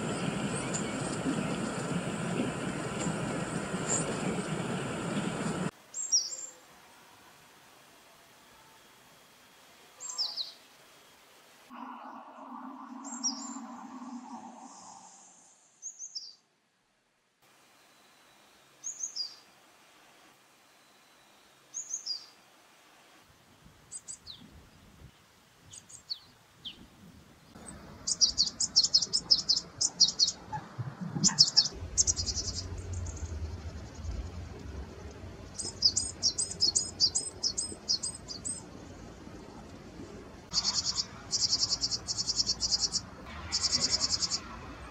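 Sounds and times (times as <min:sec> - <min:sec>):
songbirds chirping: 0:00.0 - 0:06.7, 0:10.0 - 0:10.8, 0:11.7 - 0:16.5, 0:20.7 - 0:22.4, 0:23.9 - 0:44.9.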